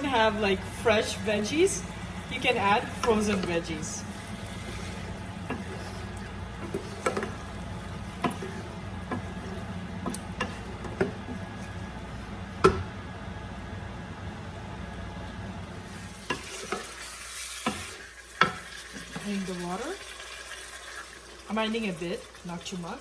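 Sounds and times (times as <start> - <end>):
food frying in a pan: 0.0 - 12.9, 15.7 - 23.0
steady low hum: 0.0 - 16.4.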